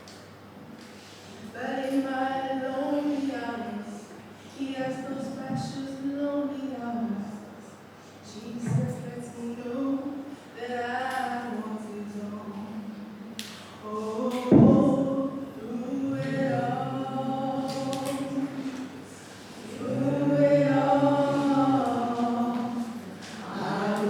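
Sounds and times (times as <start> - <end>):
voices singing worship song: 13.7 - 24.0.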